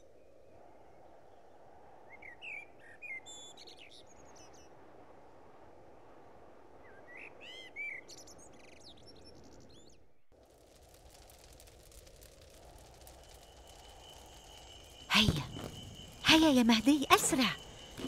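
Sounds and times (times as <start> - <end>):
faint ambient hiss: 0.0 - 18.0
birds chirping: 12.8 - 18.0.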